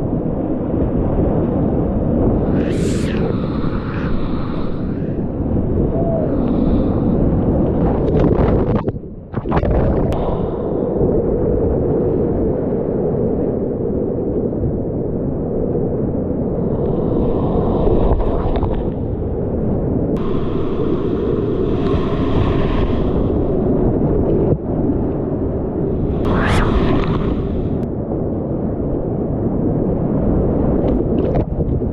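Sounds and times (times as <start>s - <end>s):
hissing water splashes: 2.4s - 5.6s, 26.0s - 27.8s.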